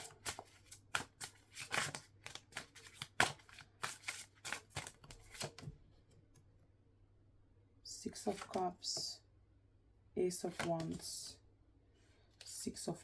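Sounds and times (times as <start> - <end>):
cards being shuffled: 0.0 - 5.7, 8.3 - 8.6.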